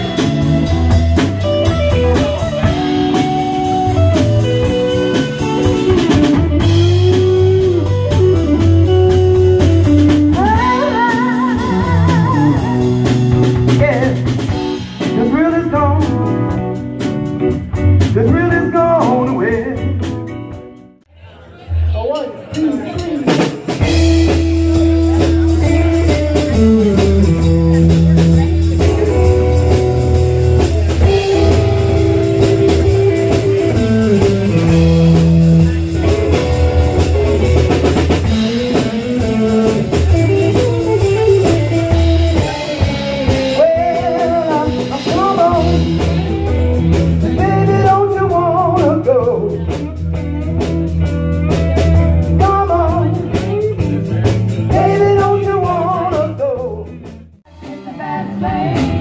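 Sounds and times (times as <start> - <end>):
live blues band playing: 0.0 - 21.0, 21.6 - 59.0
person singing: 10.1 - 14.3, 38.2 - 50.5, 51.5 - 59.0.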